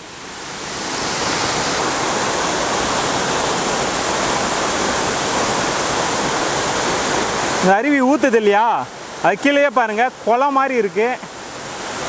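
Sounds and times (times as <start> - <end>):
waterfall pouring into pool: 0.0 - 12.0.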